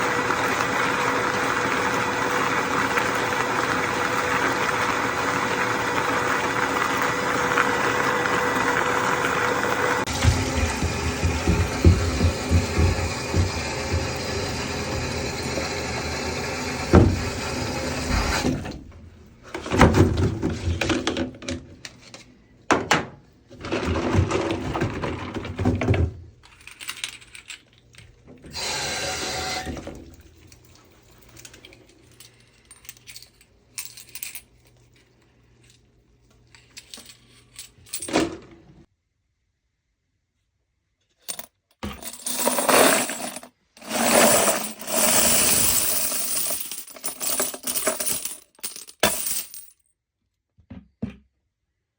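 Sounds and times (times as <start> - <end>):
steady mechanical noise: 5.8 - 18.9
metal cases and tools clinking: 41.3 - 49.7.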